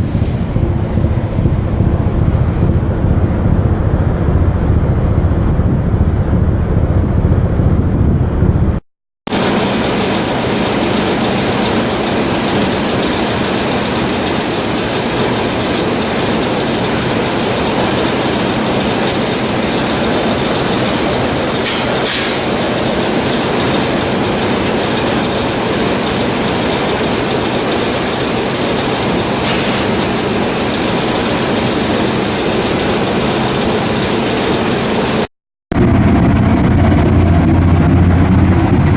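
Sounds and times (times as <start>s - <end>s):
ship diesel machinery running: 0.0s - 38.9s
wind rumble on microphone: 0.0s - 38.9s
high-pitched machinery whines: 9.3s - 36.4s.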